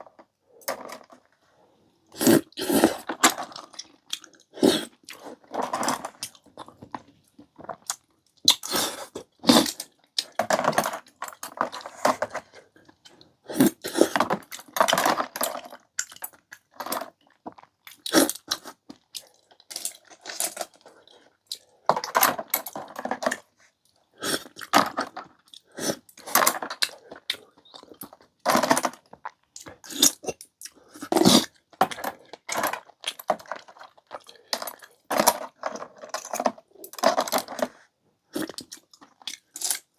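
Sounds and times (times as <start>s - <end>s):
person chewing food: 2.1s - 10.4s, 24.0s - 39.9s.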